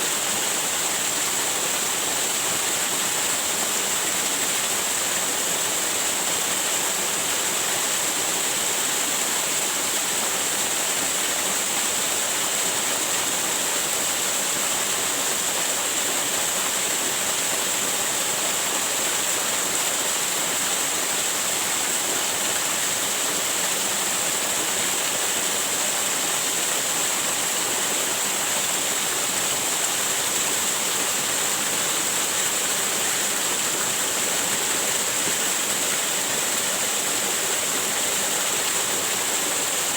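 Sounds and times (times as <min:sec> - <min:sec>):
waterfall roar: 0:12.0 - 0:39.9.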